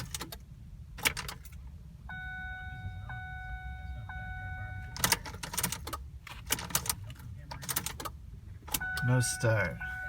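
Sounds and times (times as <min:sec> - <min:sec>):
ignition key clicks: 0:01.0 - 0:01.6, 0:04.9 - 0:09.1
electronic dashboard chime: 0:02.1 - 0:05.0, 0:08.8 - 0:10.0.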